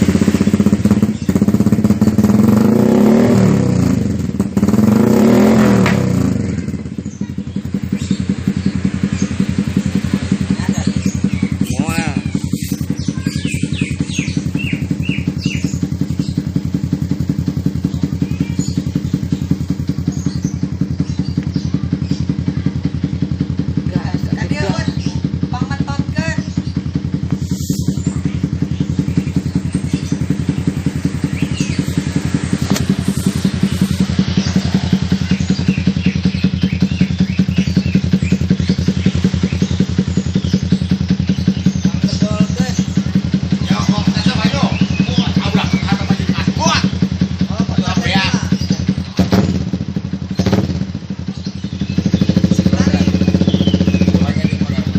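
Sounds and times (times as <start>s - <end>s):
motorcycle engine idling: 0.0s - 54.9s.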